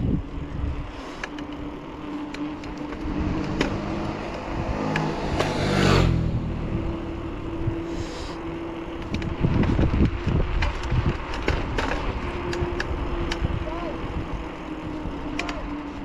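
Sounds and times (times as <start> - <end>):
bicycle rushing downhill: 0.0 - 16.0
vehicle engine passing: 0.8 - 10.0.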